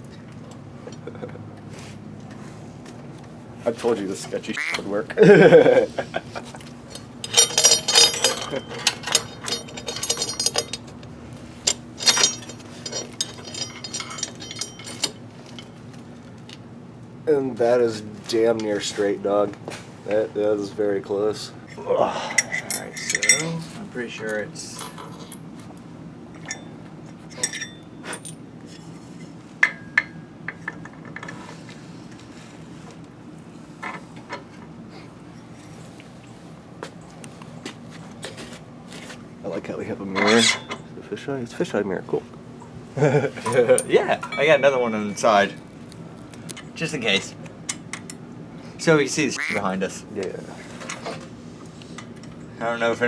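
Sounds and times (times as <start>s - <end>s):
low steady hum: 2.2s - 53.0s
metal tools clinking and rattling: 6.6s - 15.9s, 21.7s - 25.5s, 26.4s - 31.5s, 40.1s - 40.9s, 43.4s - 45.4s.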